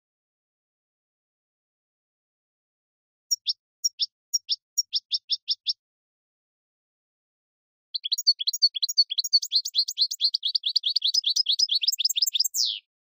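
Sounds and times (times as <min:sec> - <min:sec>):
bird singing high chirps: 0:03.3 - 0:05.8, 0:08.0 - 0:12.9.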